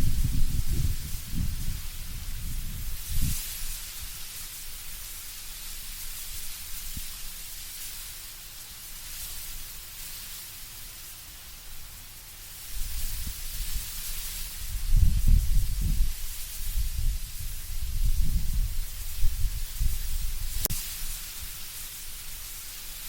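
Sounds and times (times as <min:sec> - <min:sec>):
low gusty rumble: 0:00.0 - 0:04.1, 0:14.6 - 0:20.7
leaves rustling in wind: 0:00.0 - 0:23.0.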